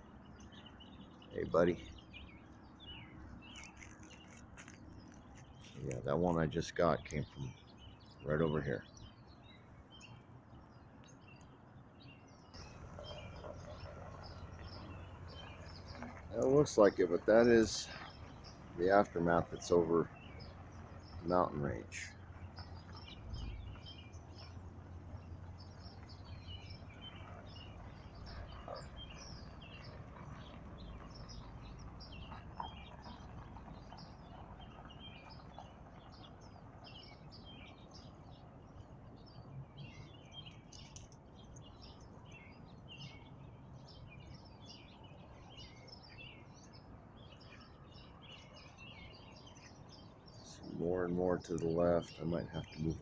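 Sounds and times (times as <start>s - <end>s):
birds chirping: 0.0s - 53.0s
low outdoor rumble: 12.5s - 40.0s.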